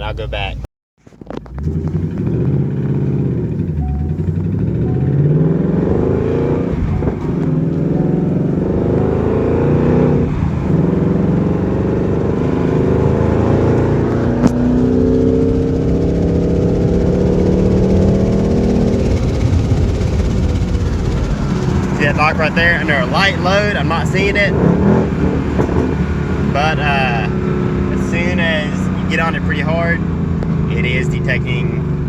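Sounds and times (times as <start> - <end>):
car engine accelerating: 1.1 - 32.0.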